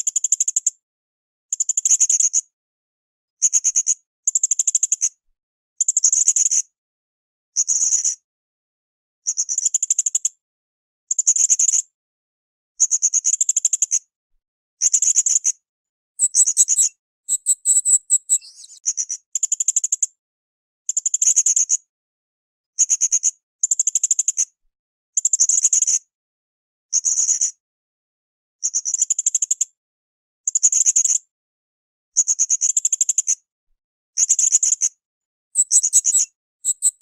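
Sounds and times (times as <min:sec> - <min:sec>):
parrot calling: 0:16.2 - 0:18.8.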